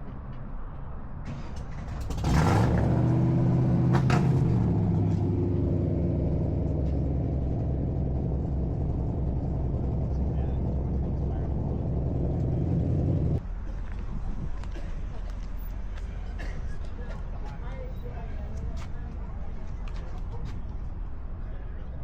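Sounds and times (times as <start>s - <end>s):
car engine starting and idling: 1.2s - 13.4s.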